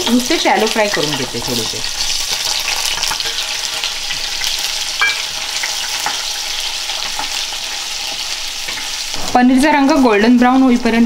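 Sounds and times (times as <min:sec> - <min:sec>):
cheese sizzling in hot oil: 0:00.0 - 0:11.0.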